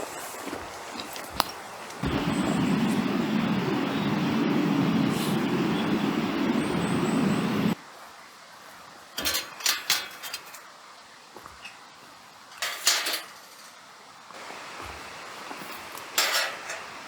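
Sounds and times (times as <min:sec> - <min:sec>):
steady rumbling noise: 0:02.0 - 0:07.8
metal cookware clinking: 0:12.6 - 0:13.7, 0:16.2 - 0:16.9.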